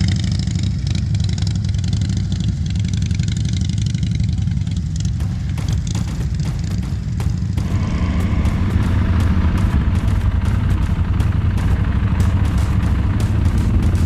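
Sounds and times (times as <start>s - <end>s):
motorcycle engine running: 0.0s - 14.0s
wind buffets: 7.6s - 14.0s.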